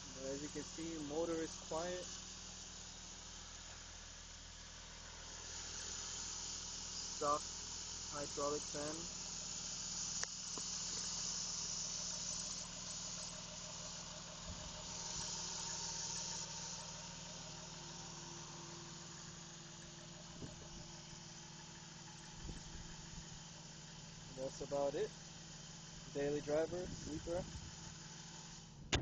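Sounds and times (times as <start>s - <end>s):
car engine idling: 0.0s - 29.0s
click: 10.2s - 10.7s.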